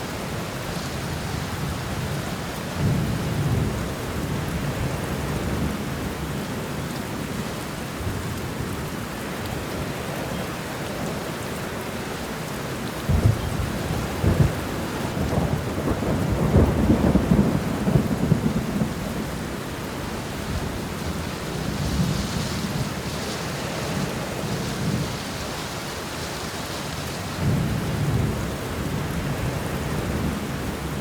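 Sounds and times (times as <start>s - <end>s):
steady rain: 0.0s - 31.0s
thunder rumbling: 13.0s - 31.0s.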